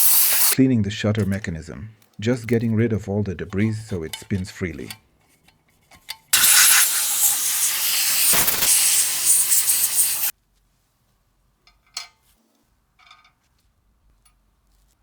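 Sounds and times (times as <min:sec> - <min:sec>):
pressurised spray hissing: 0:00.0 - 0:00.6, 0:06.4 - 0:10.3.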